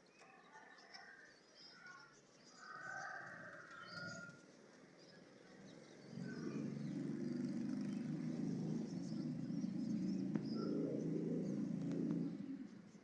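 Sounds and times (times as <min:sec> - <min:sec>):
small birds chirping: 0:03.8 - 0:13.0.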